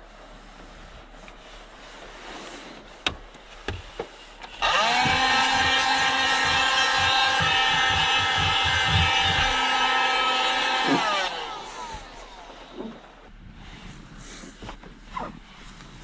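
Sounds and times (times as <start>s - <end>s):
small electric motor whining: 4.6s - 13.0s.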